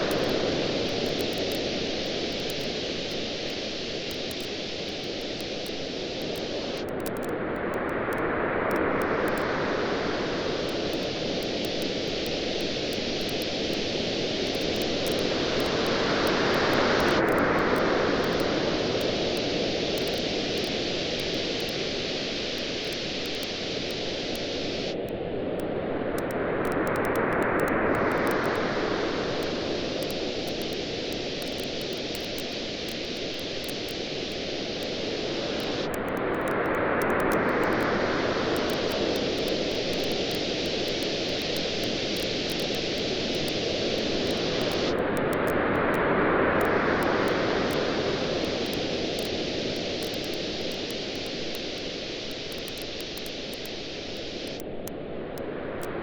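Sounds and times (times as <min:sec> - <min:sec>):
campfire crackling and popping: 0:00.1 - 0:07.3, 0:10.6 - 0:18.6, 0:29.5 - 0:37.9, 0:38.6 - 0:45.4, 0:48.4 - 0:54.8
ocean surf washing: 0:27.7 - 0:54.6.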